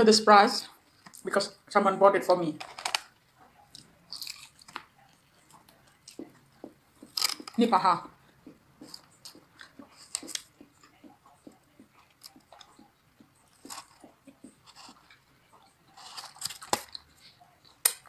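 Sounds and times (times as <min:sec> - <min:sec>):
crunchy chewing of fried chicken: 0:03.6 - 0:07.4, 0:08.3 - 0:18.0.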